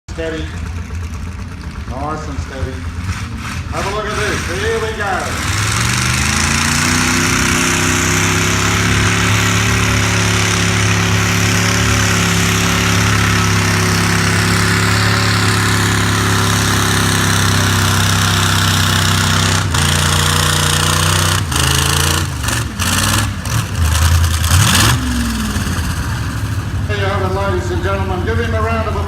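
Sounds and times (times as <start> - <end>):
engine revving at high revs: 2.5 - 26.8.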